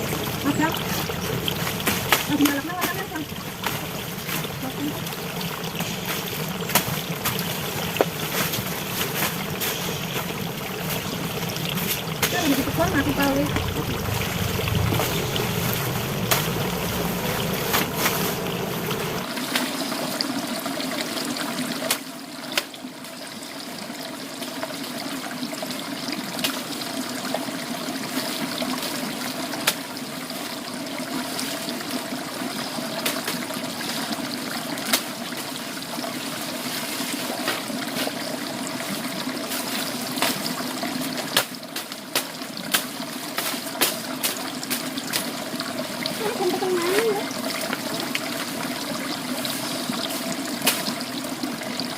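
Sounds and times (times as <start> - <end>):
water trickling and splashing: 0.0 - 51.9
low rumble: 7.4 - 19.2.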